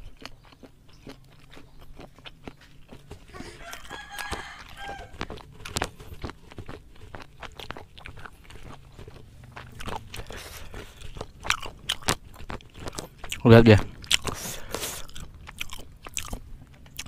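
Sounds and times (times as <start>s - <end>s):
wet chewing and mouth smacks: 0.0s - 17.0s.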